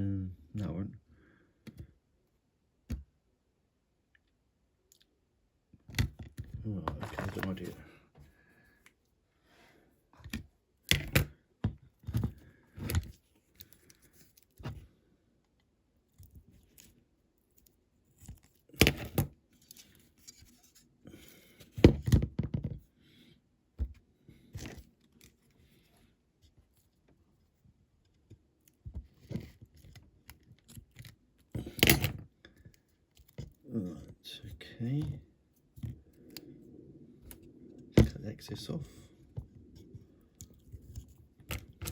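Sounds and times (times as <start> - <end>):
tools handled on a workbench: 5.8 - 7.9, 28.2 - 33.6, 39.4 - 41.9.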